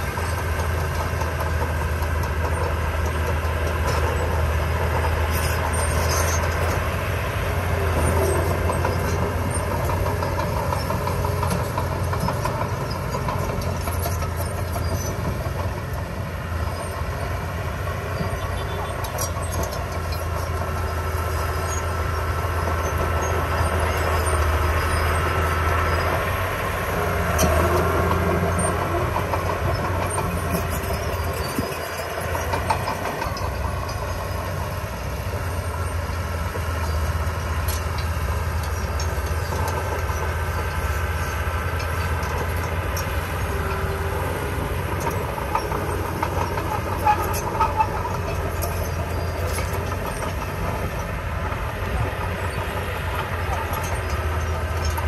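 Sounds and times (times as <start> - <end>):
diesel engine of heavy machinery: 0.0 - 55.0
metallic clanks and rattling: 27.0 - 34.7, 36.8 - 55.0.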